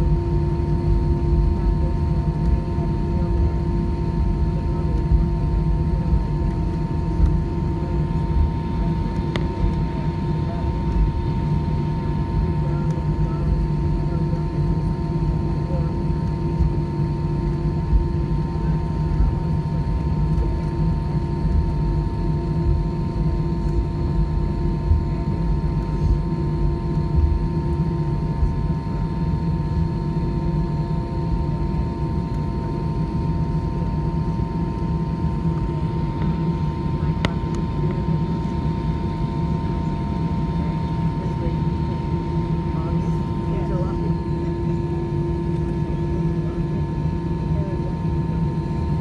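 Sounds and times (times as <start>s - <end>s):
aircraft cabin low rumble: 0.0s - 49.0s
steady hum: 17.4s - 49.0s.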